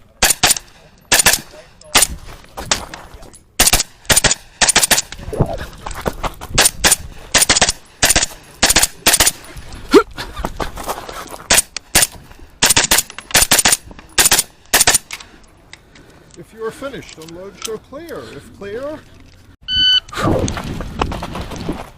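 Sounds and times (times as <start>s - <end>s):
rapid gunfire: 0.2s - 2.1s, 3.6s - 5.1s, 6.6s - 9.4s, 11.5s - 15.0s.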